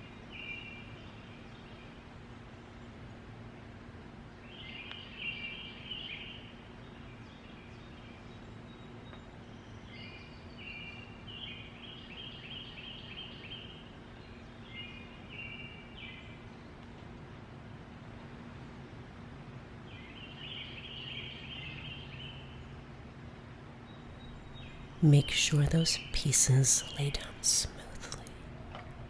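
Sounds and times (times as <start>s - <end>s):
songbirds singing: 24.1s - 28.4s
faint low hum: 24.1s - 29.0s.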